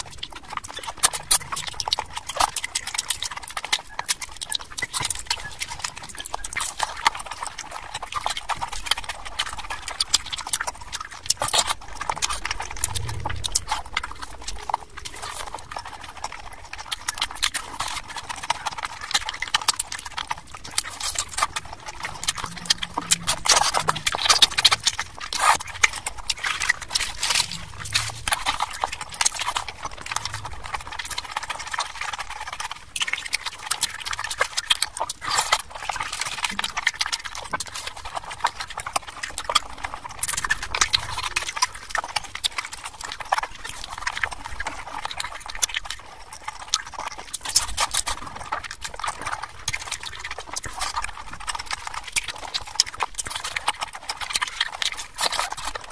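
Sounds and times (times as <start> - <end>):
wet chewing and lip-smacking: 0.0 - 55.9.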